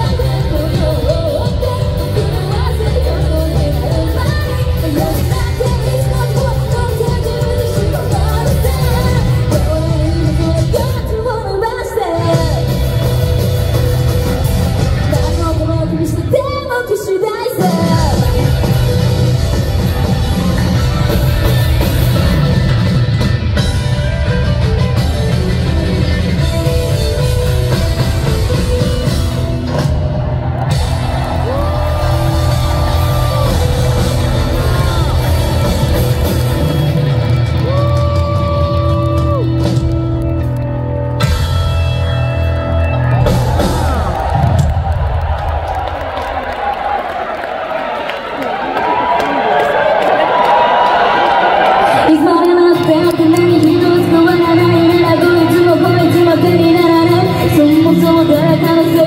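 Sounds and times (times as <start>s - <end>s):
bass: 0.0s - 16.9s, 17.6s - 46.6s, 52.0s - 59.0s
live rock band playing: 0.0s - 45.3s
drums: 0.0s - 59.0s.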